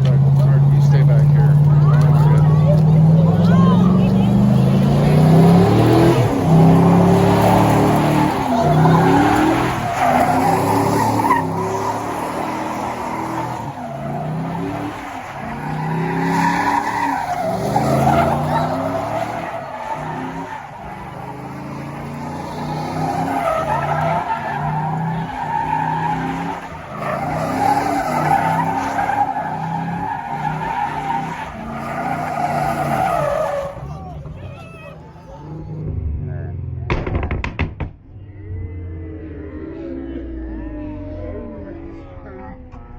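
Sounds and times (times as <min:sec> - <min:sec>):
engine revving: 0:00.0 - 0:42.9
tyre squeal: 0:05.4 - 0:35.6.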